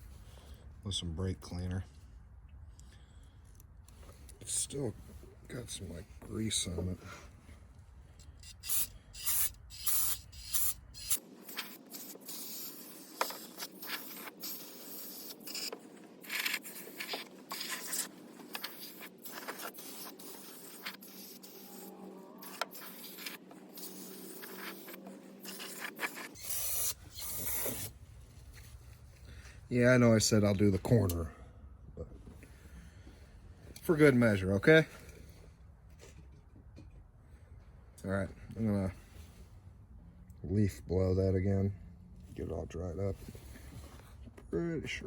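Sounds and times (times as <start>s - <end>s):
aerosol spray hissing bursts: 8.4s - 27.9s.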